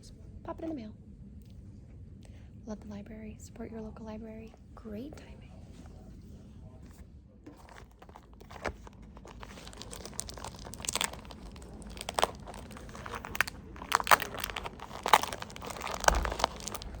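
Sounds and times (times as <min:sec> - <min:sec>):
packaging crinkling: 0:07.5 - 0:17.0.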